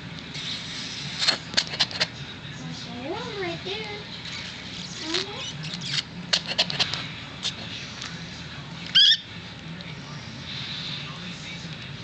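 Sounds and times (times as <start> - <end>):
puppy squeaking high-pitched: 8.9 - 9.3.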